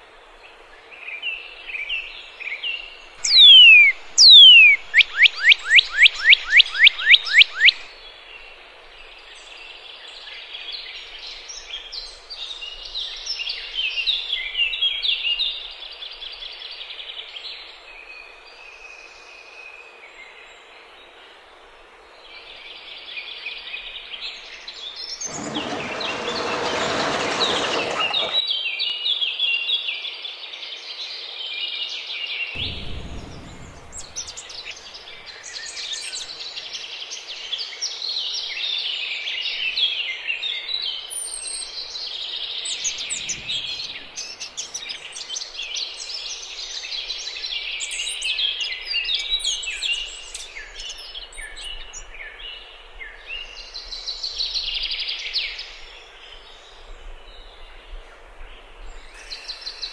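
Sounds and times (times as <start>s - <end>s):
birds calling: 3.2s - 7.9s, 25.2s - 28.4s, 32.6s - 36.3s
chattering birdsong: 3.2s - 7.9s, 32.6s - 36.3s
rushing noise: 32.6s - 35.2s.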